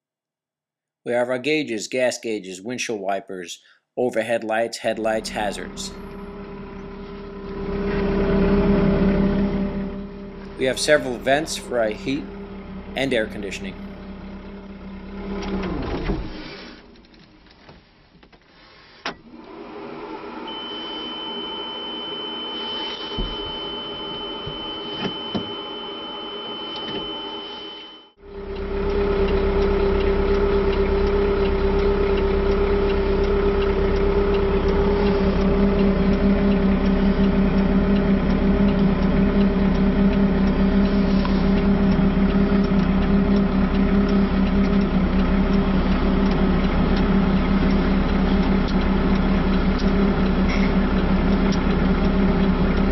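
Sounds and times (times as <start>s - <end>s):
faint hum: 4.9s - 16.4s, 20.4s - 52.9s
digger engine starting and idling: 4.9s - 17.2s, 28.2s - 52.9s
high-pitched warning tone: 20.5s - 48.7s.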